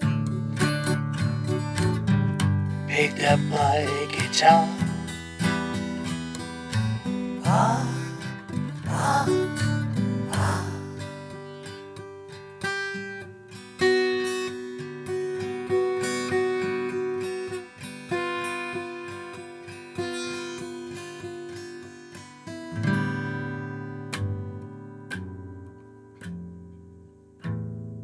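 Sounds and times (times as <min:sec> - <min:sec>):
acoustic guitar picking and strumming: 0:00.0 - 0:11.8.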